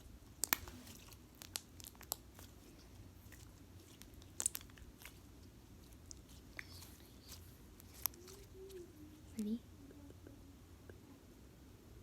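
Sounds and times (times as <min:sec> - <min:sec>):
slime squished by hand: 0:00.2 - 0:08.9.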